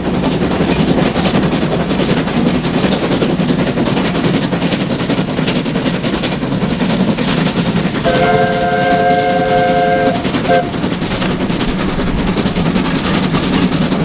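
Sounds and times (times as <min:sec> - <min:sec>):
steam locomotive exhaust beats: 0:00.0 - 0:14.0
train running noise: 0:00.0 - 0:14.0
steam whistle: 0:08.0 - 0:11.0.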